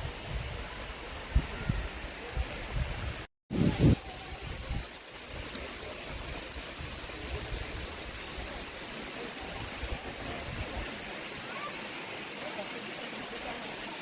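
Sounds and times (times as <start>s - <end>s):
wind rumble on microphone: 0.0s - 8.4s
waterfall rushing: 0.0s - 14.0s.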